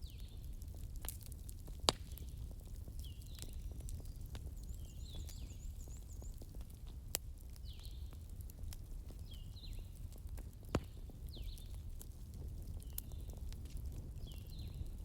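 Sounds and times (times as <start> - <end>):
bonfire crackling: 0.0 - 15.0
sharp fire pop: 1.8 - 2.2.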